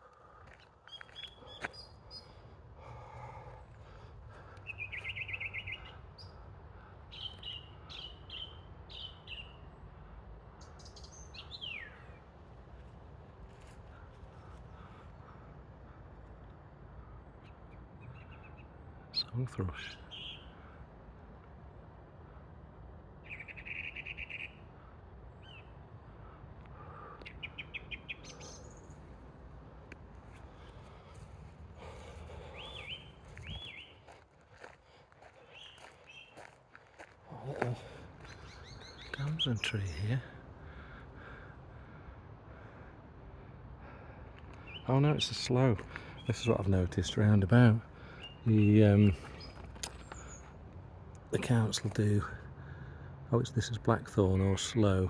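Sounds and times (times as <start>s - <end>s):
bird singing: 0.0s - 9.9s, 10.5s - 12.3s, 17.2s - 20.6s, 23.2s - 29.2s, 30.4s - 41.6s, 44.0s - 50.6s.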